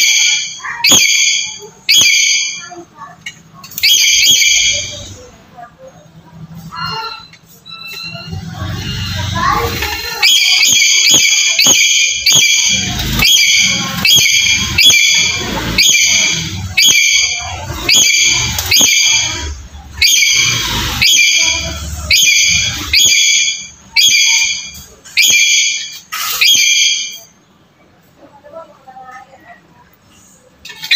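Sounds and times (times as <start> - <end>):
parrot shrill squawks: 9.6 - 27.3.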